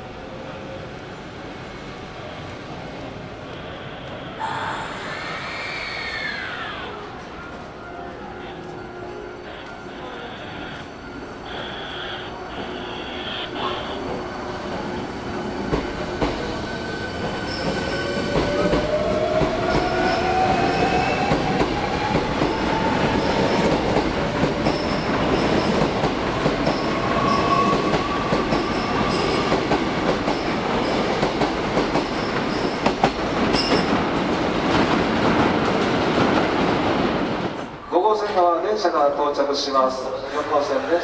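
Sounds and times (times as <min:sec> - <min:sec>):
train wheels rumbling on rails: 0:09.6 - 0:37.8.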